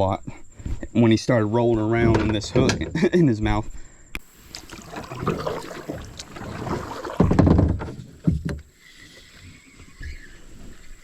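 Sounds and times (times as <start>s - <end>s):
knocks on kayak hull: 6.9s - 8.6s.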